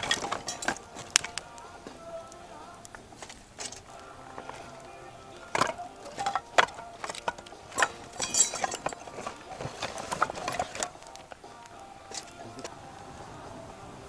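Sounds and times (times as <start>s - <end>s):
sharp knocks and clinks: 5.4s - 10.9s.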